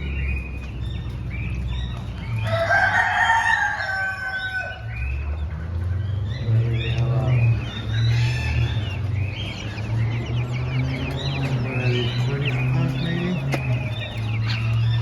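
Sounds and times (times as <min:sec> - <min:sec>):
small birds chirping: 0:00.0 - 0:15.0
rooster crowing: 0:02.4 - 0:04.9.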